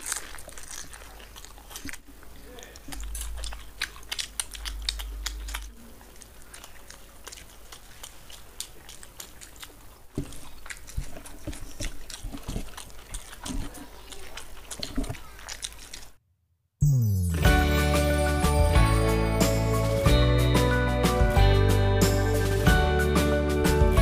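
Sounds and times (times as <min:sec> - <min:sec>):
people chewing with lip smacks: 0:00.0 - 0:16.2.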